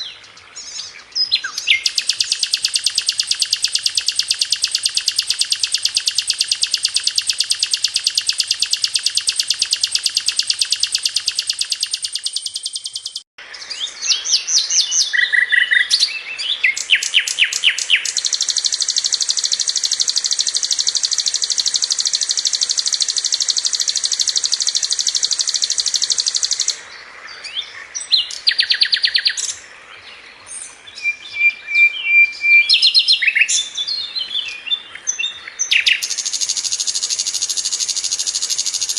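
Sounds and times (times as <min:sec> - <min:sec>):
bird chirps: 0:00.0 - 0:38.9
flycatcher trilling: 0:01.4 - 0:13.3, 0:14.1 - 0:26.8, 0:35.6 - 0:38.9.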